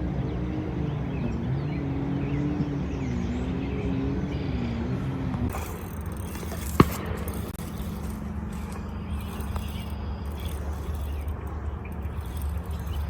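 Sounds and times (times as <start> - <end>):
distant motor humming: 0.0 - 13.0.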